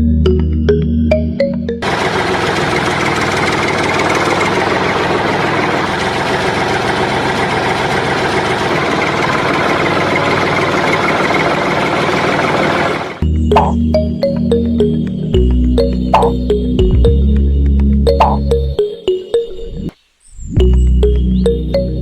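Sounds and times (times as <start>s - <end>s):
engine running with rattle: 1.8s - 13.8s.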